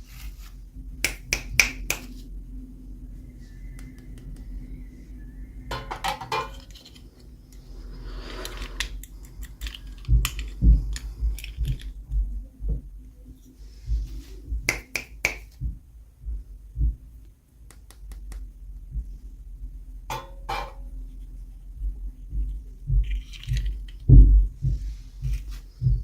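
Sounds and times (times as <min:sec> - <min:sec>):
toy packaging clicks and taps: 0:01.0 - 0:02.2, 0:08.4 - 0:12.0, 0:23.2 - 0:24.1
soft low bumps: 0:09.8 - 0:14.7, 0:15.4 - 0:26.0.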